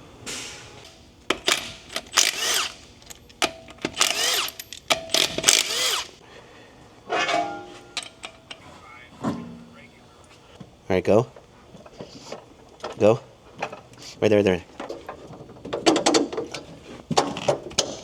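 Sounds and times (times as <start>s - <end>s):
cordless power tool whirring: 1.3s - 6.2s.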